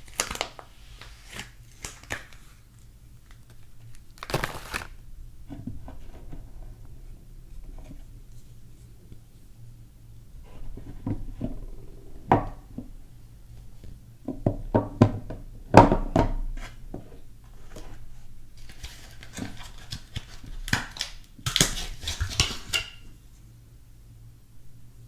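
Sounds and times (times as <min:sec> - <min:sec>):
wrapper crinkling: 0:00.0 - 0:05.0.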